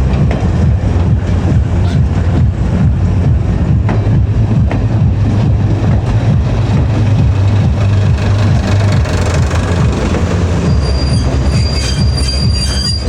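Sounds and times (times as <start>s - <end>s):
train rumble: 0.0s - 13.0s
high wheel squeal: 6.5s - 13.0s.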